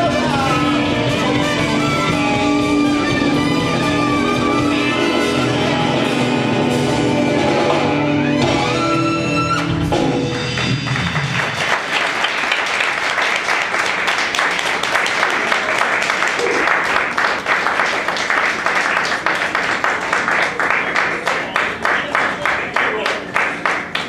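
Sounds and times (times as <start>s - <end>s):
live band playing: 0.0s - 12.2s
audience applause: 10.3s - 24.0s.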